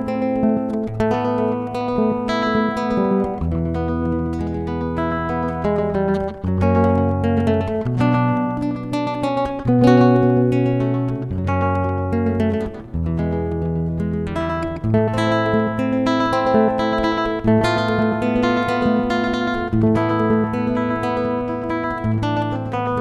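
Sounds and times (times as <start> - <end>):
acoustic guitar strumming chords: 0.0 - 23.0.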